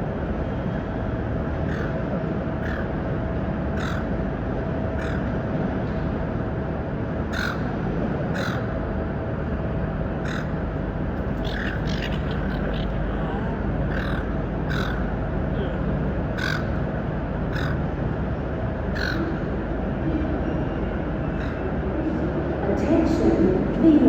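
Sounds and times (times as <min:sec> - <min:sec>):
steady low rumble: 0:00.0 - 0:24.0
seagulls squawking: 0:03.8 - 0:04.1, 0:08.4 - 0:08.7, 0:10.2 - 0:10.6, 0:11.4 - 0:13.0, 0:13.9 - 0:15.1, 0:16.4 - 0:16.7, 0:17.5 - 0:17.8, 0:19.0 - 0:19.4.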